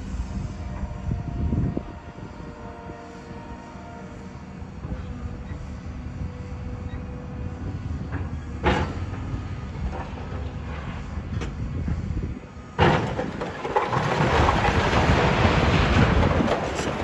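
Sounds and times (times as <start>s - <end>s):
machinery engine rumble: 0.0s - 3.6s, 4.2s - 17.0s
debris crashing: 12.8s - 17.0s.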